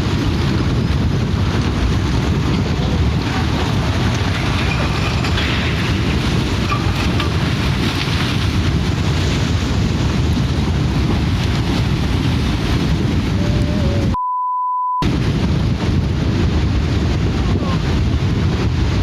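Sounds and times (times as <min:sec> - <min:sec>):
loud low rushing noise: 0:15.0 - 0:17.4.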